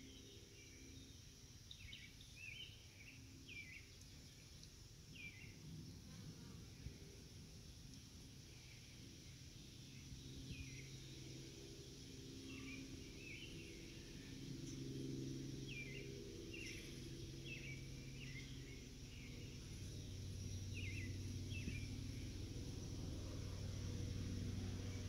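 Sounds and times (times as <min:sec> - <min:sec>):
low steady hum: 0:00.0 - 0:25.0
bird chirping faintly: 0:07.9 - 0:25.0.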